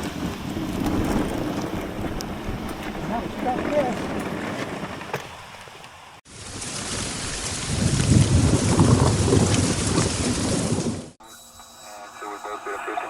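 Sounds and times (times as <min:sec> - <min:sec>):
deep rumble: 0:00.0 - 0:05.1.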